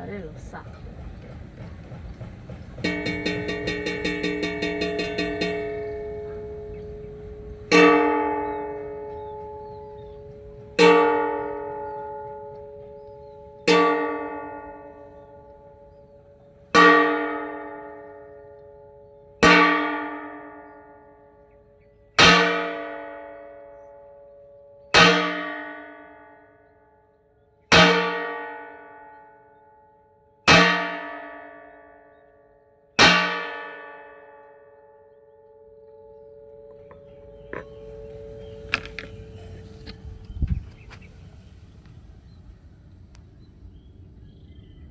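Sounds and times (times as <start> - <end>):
metal pot struck ringing: 2.8 - 21.1, 24.9 - 26.3, 27.7 - 29.2, 33.0 - 34.6, 35.8 - 39.9.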